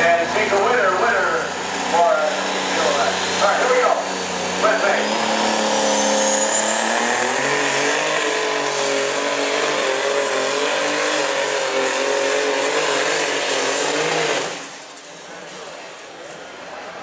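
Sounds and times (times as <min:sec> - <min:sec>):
tractor engine drone: 0:00.0 - 0:17.0
turbo whine: 0:01.1 - 0:11.8.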